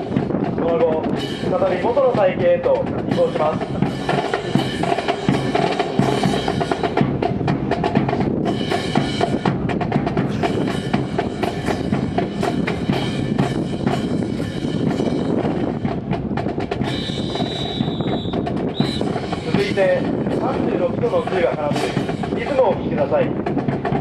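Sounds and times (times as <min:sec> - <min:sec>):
marching drum cadence: 0:00.0 - 0:24.0.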